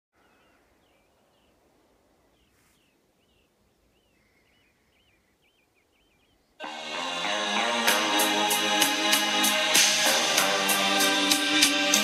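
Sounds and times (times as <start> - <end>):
small bird chirping: 0.2 - 6.6.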